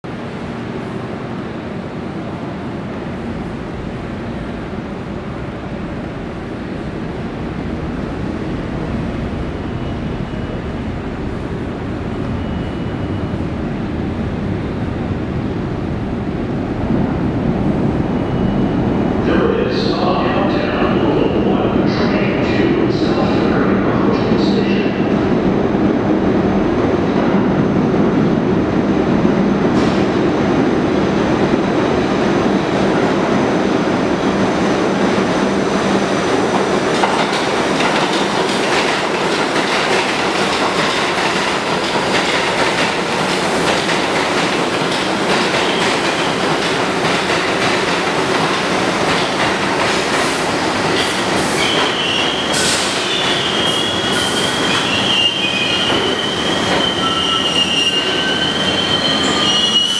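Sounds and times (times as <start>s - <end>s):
train wheels clattering: 36.5s - 59.9s
wheels squealing: 51.6s - 59.9s.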